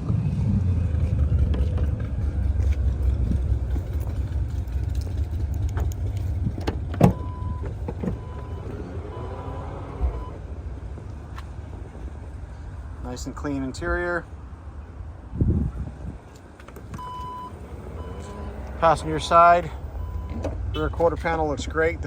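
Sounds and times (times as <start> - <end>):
car electronic warning beep: 7.1 - 10.4, 17.0 - 18.6, 19.9 - 21.0
wind on microphone: 15.2 - 16.4.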